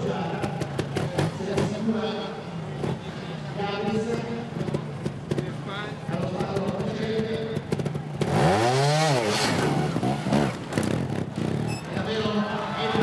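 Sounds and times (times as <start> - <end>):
motorcycle engine revving: 0.2 - 1.9, 4.1 - 12.1.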